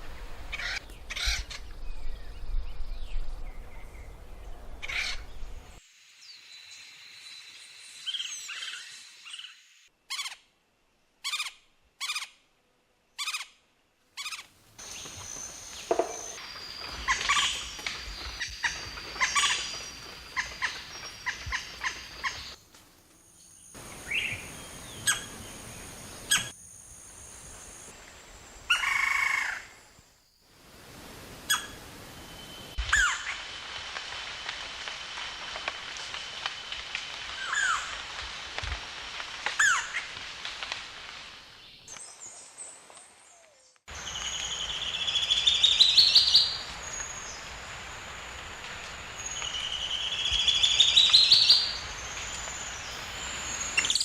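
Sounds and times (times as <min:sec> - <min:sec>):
wild birds calling and singing: 0:14.2 - 0:22.6.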